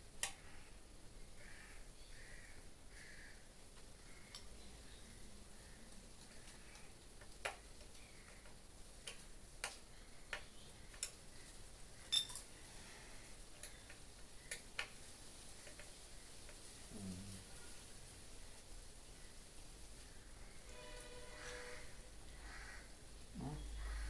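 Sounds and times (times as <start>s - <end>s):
clicks and taps of fan parts: 6.2s - 11.2s, 13.6s - 15.0s, 15.6s - 16.6s.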